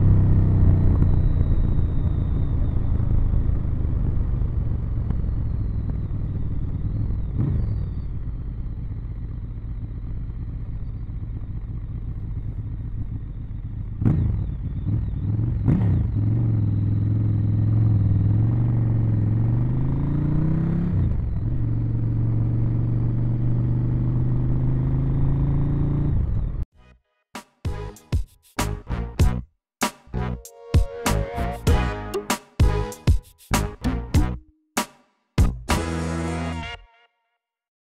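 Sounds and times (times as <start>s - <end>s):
motorcycle engine running: 0.0s - 26.6s.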